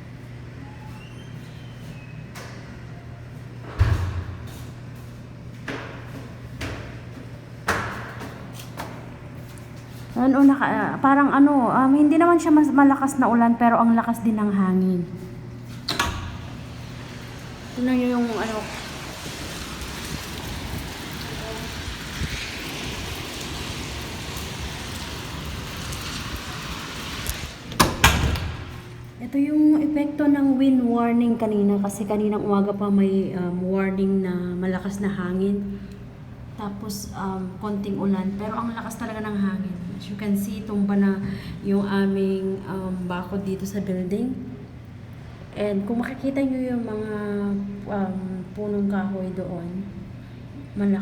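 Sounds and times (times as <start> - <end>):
steady low hum: 0.0 - 51.0
wind rumble on microphone: 18.8 - 28.4.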